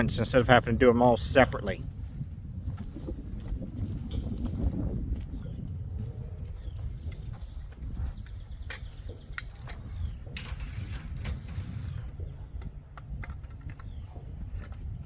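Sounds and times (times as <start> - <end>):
wind rumble on microphone: 0.0 - 15.0
clicks and clanks of gear: 6.4 - 15.0.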